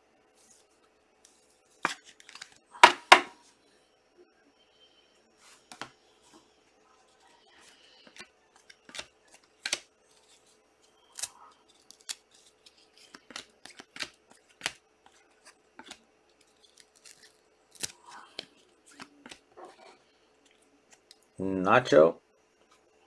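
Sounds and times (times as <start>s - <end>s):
cards being flipped: 1.3s - 2.6s, 8.0s - 19.4s.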